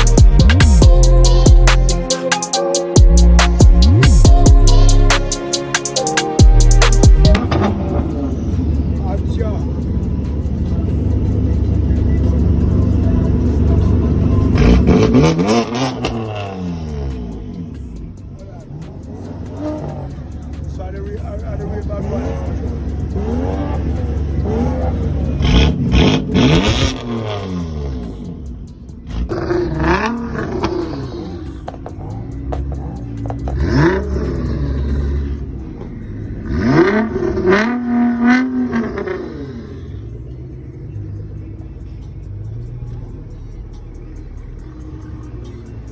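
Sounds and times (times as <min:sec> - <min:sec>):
car engine revving: 0:00.0 - 0:45.9
road noise: 0:00.0 - 0:45.9
exhaust pops and crackles: 0:31.5 - 0:34.0.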